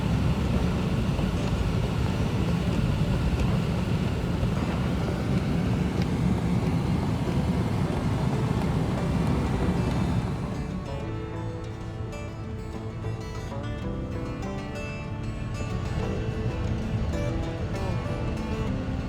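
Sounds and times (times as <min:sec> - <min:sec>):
wind noise: 0:00.0 - 0:13.9
road noise: 0:00.0 - 0:19.0.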